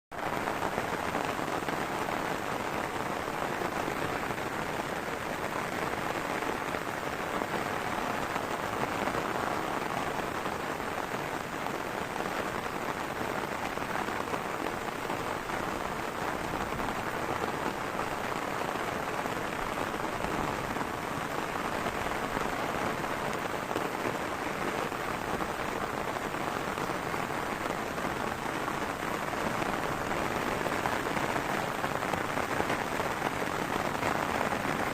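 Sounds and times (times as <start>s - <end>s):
heavy rain falling: 0.1s - 34.9s.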